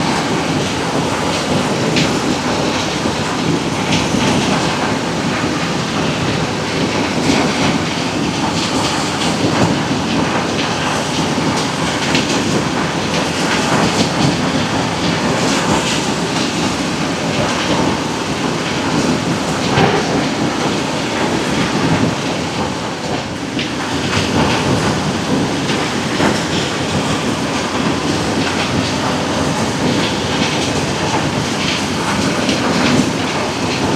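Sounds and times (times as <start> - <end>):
heavy diesel machinery: 0.0 - 33.9.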